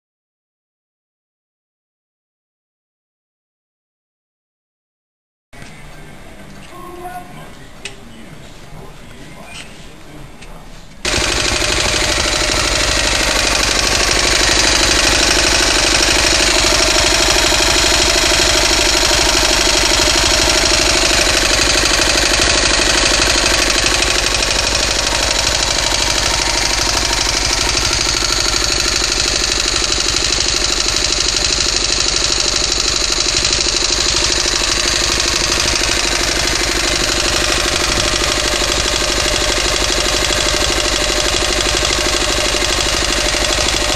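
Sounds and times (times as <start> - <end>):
small diesel engine running: 11.0 - 43.9.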